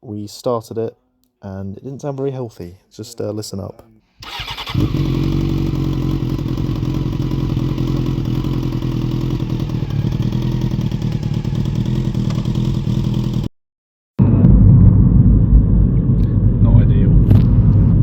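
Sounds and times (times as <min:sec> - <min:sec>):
motorcycle engine idling with rattle: 0:04.3 - 0:13.5.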